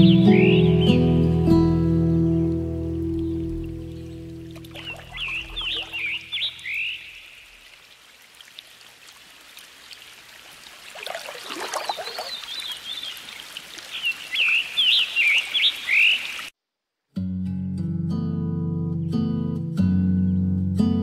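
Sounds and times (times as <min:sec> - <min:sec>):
small birds chirping: 0:02.1 - 0:07.8, 0:11.6 - 0:16.5
trickle of running water: 0:02.5 - 0:16.5.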